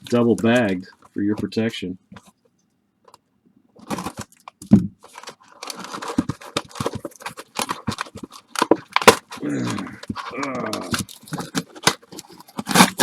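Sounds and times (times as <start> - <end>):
plastic bag crinkling and tearing: 3.8 - 4.4, 5.0 - 13.0.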